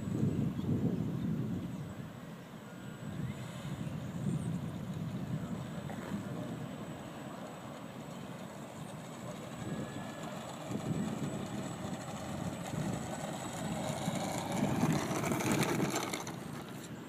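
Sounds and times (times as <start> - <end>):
wind buffeting microphone: 0.0 - 2.0, 3.1 - 16.8
model plane motor whirring: 4.6 - 17.0.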